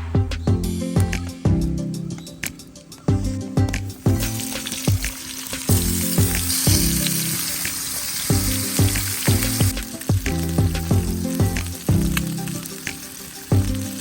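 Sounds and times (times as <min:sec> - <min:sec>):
background music: 0:00.0 - 0:14.0
food sizzling in a pan: 0:03.9 - 0:14.0.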